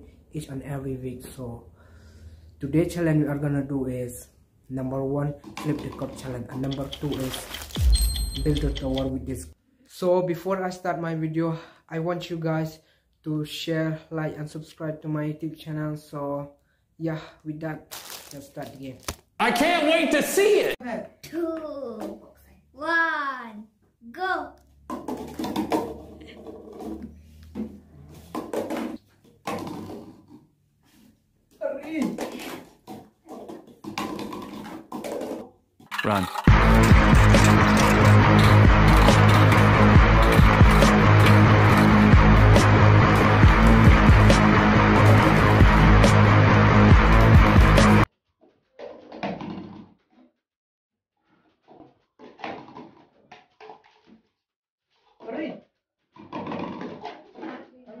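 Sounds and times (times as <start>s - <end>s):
plastic cups clattering on table: 5.4s - 7.8s, 24.8s - 30.4s, 31.9s - 36.5s, 56.2s - 57.7s
plastic cups tapping on wooden table: 24.8s - 30.2s.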